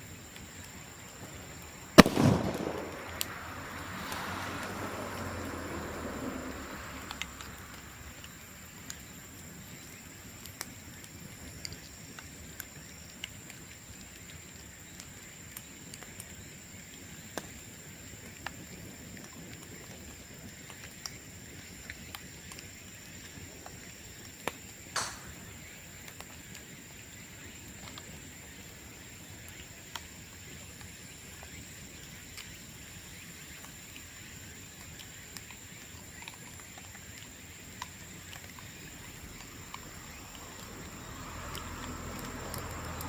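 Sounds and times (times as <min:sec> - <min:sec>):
bonfire crackling: 0:00.0 - 0:43.0
sharp pops of burning bamboo: 0:01.9 - 0:05.3, 0:24.5 - 0:26.4.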